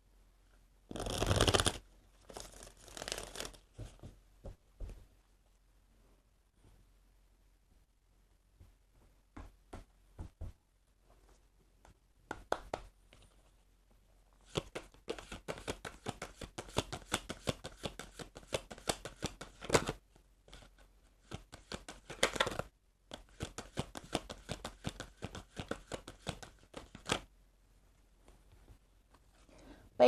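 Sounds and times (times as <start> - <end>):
cards being shuffled: 0.9 - 4.0, 14.4 - 27.3.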